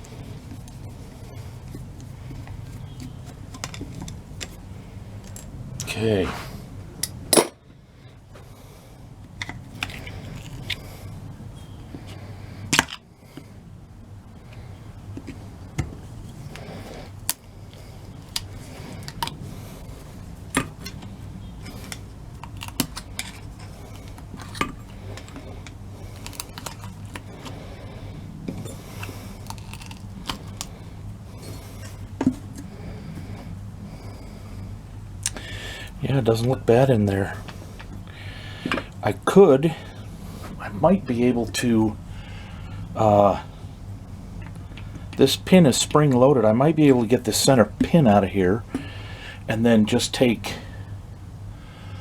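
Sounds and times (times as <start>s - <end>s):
steady low hum: 0.0s - 52.0s
metal tools clicking and clinking: 7.0s - 7.6s.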